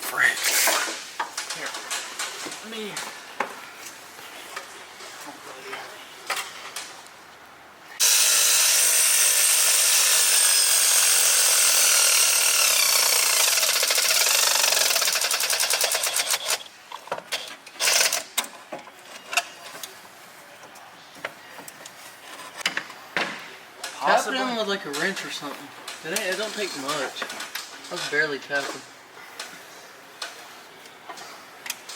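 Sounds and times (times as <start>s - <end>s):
power tool rattling: 8.0s - 16.6s, 17.4s - 18.3s.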